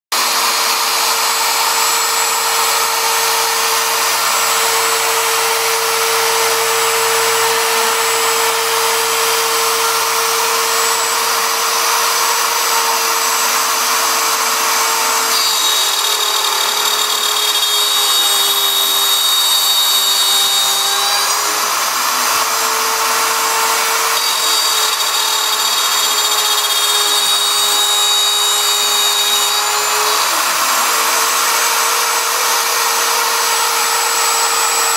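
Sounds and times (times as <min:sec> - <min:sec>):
bit cutting wood rushing: 0:00.1 - 0:34.9
router spindle whine: 0:00.2 - 0:34.9.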